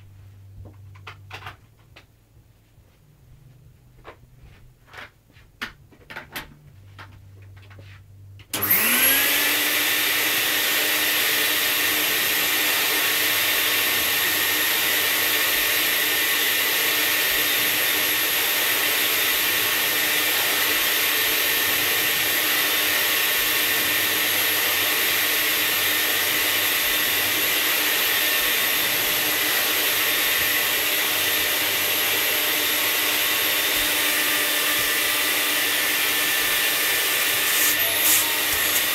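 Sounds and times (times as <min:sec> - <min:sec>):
vacuum cleaner running: 0:08.5 - 0:38.9.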